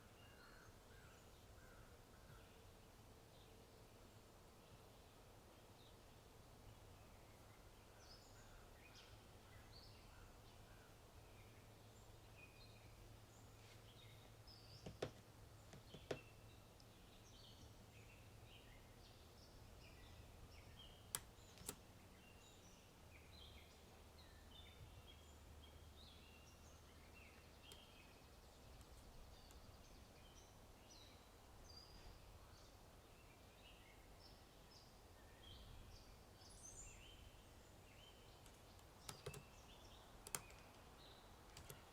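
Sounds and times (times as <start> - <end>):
faint birdsong chirps: 0.0 - 41.9
low background hum: 0.3 - 41.9
sharp clicks: 21.1 - 21.8, 38.4 - 39.5, 40.2 - 40.8, 41.5 - 41.9.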